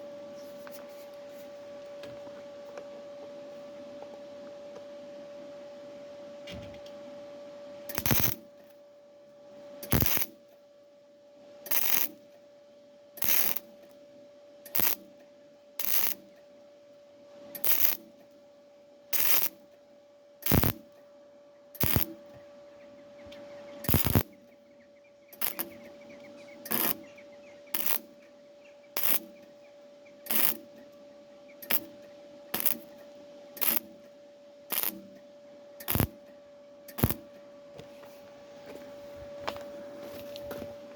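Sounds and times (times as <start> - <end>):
steady hum: 0.0 - 40.9
welder bursts: 7.9 - 8.5, 9.8 - 10.4, 11.7 - 12.2, 13.2 - 13.8, 14.7 - 15.1, 15.8 - 16.3, 17.6 - 18.1, 19.1 - 19.6, 20.4 - 20.9, 21.8 - 22.2, 23.8 - 24.3, 25.3 - 25.8, 26.6 - 27.1, 27.7 - 28.2, 29.0 - 29.4, 30.2 - 30.7, 32.5 - 32.9, 33.6 - 34.0, 34.7 - 35.1, 35.8 - 36.2, 36.9 - 37.3.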